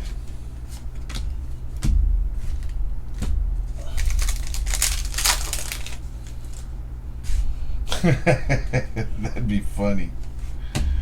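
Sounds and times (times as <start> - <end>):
steady low hum: 0.0 - 11.0
packaging rustling and crinkling: 3.7 - 6.7.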